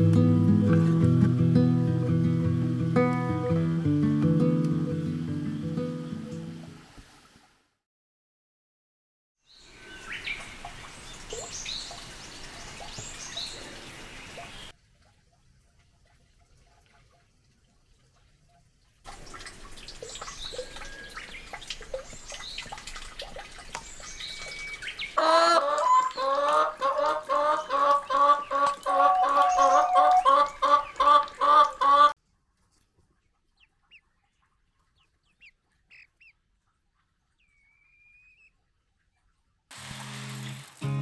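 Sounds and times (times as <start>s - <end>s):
bird clucking calls: 24.8s - 32.2s.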